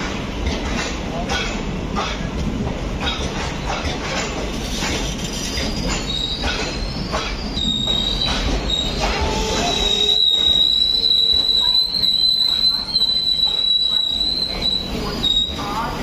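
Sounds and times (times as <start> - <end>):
wheels clicking over rail joints: 0.0 - 13.0
train rumble: 0.0 - 16.0
high wheel squeal: 4.7 - 15.9.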